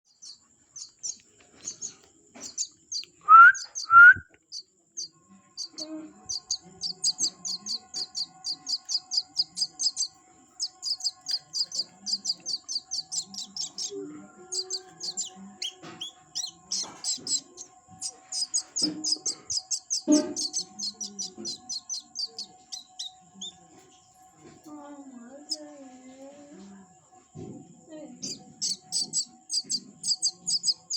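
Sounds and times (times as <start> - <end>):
small bird chirping: 0.0 - 24.1, 25.3 - 25.7, 28.2 - 30.9
lower bird calls: 5.6 - 23.1, 28.2 - 30.9.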